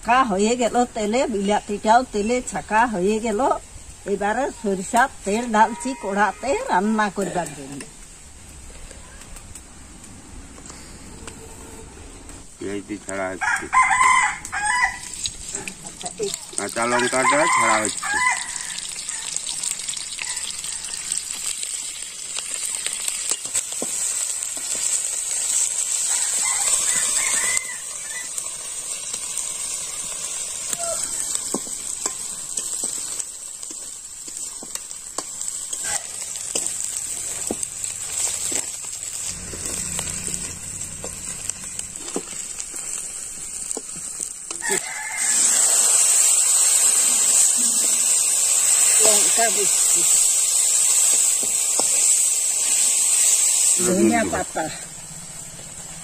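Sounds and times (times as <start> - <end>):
vegetables sizzling in oil: 0.0 - 56.0
rooster crowing: 5.4 - 7.8, 13.4 - 15.8, 16.9 - 21.4, 26.0 - 28.5, 30.6 - 31.6, 35.8 - 36.3, 44.5 - 46.2
metal spatula scraping a pan: 34.5 - 43.1.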